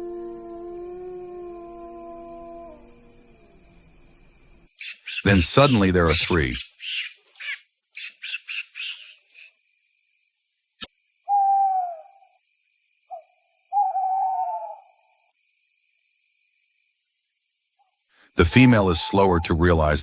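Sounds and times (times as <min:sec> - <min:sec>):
descending hoot-like calls: 0:00.0 - 0:03.4, 0:11.3 - 0:12.3, 0:13.1 - 0:15.0, 0:18.4 - 0:20.0
insect drone: 0:00.0 - 0:20.0
bird chirps: 0:04.8 - 0:09.5.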